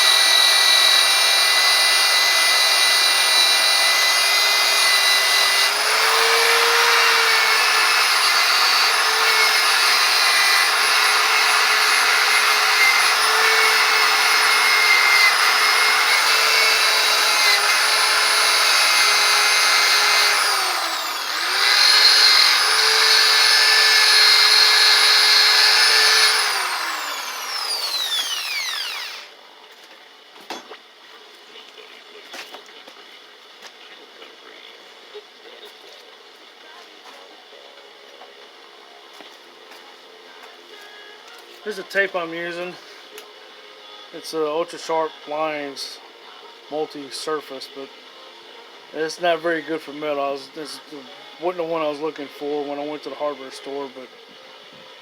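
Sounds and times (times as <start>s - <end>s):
power tool buffing wheel whine: 0.0s - 29.4s.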